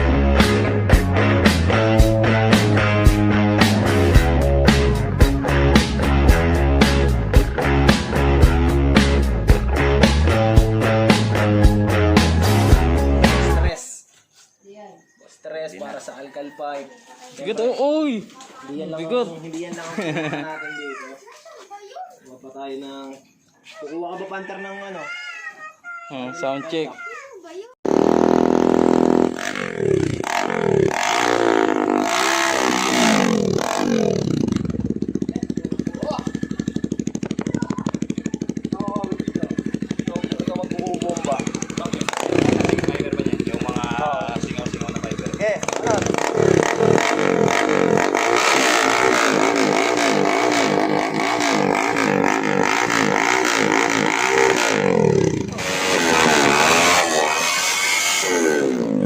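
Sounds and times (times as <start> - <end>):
motorcycle engine revving: 0.0 - 13.8, 27.8 - 59.0
motorcycle engine idling: 28.4 - 58.8.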